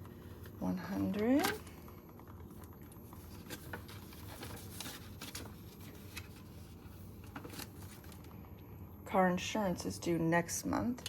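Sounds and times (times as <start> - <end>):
paper banknotes rustling: 3.2 - 8.2.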